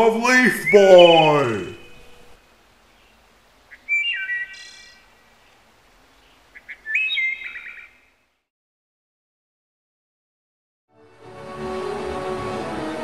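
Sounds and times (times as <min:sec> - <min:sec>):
bird chirping: 0:00.0 - 0:08.4.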